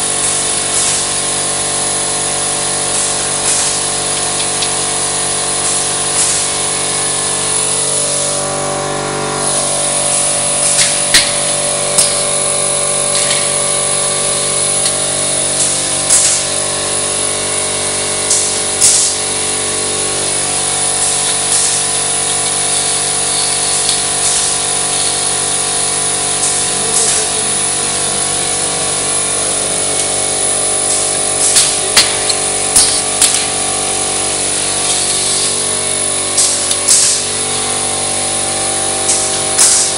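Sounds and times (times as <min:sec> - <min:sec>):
roll-forming machine running: 0:00.0 - 0:39.9
sharp metallic knocks: 0:29.9 - 0:33.7.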